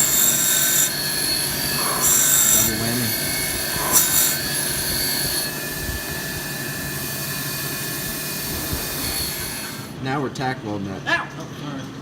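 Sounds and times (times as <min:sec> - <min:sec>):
power tool whining: 0:00.0 - 0:10.0.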